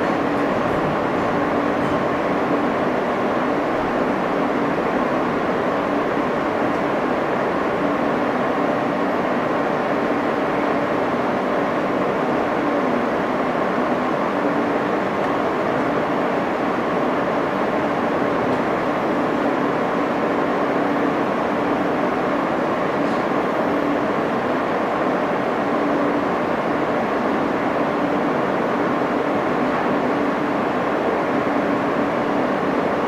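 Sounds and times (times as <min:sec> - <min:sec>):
subway wheels rumbling on rail: 0:00.0 - 0:33.0.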